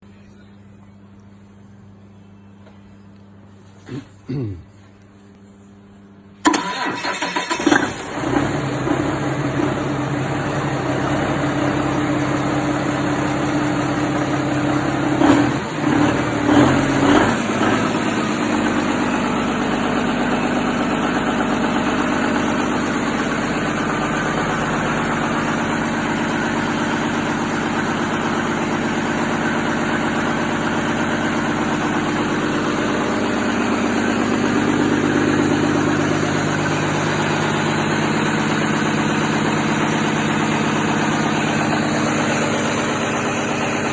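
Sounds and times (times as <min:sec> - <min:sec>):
diesel engine idling: 0:06.3 - 0:43.9
engine jolts: 0:06.4 - 0:08.6.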